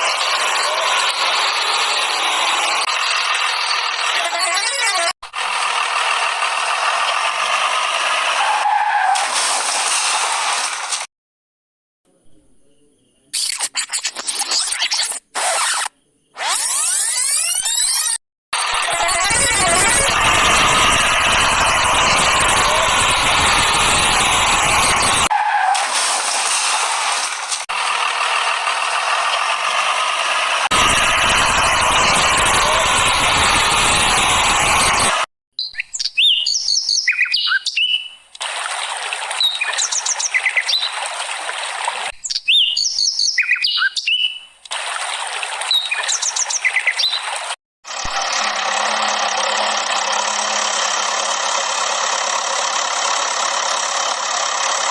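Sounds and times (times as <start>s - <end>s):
truck noise: 0.0s - 11.1s, 16.4s - 35.3s, 47.9s - 54.9s
vehicle-like rattling: 0.0s - 11.1s, 18.6s - 35.2s, 47.4s - 54.9s.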